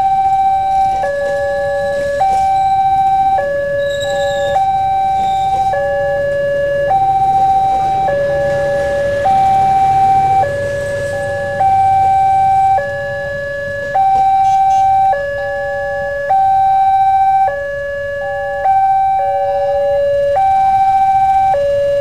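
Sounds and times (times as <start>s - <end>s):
train coaches rumbling: 0.0s - 16.1s
level crossing two-tone alarm: 0.0s - 22.0s.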